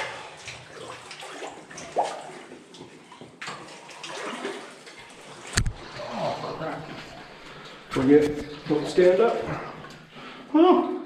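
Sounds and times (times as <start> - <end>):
water sloshing around wading legs: 0.0 - 10.2.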